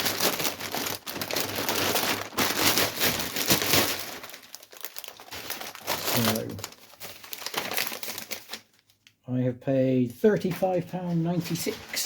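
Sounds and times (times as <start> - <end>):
crinkly packaging rustling: 0.0 - 9.2, 10.3 - 12.0.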